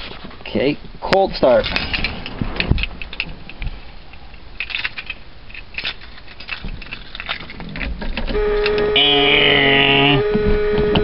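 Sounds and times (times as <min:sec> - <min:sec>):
louder whine: 0:08.4 - 0:11.0
steady electric tone: 0:08.4 - 0:11.0.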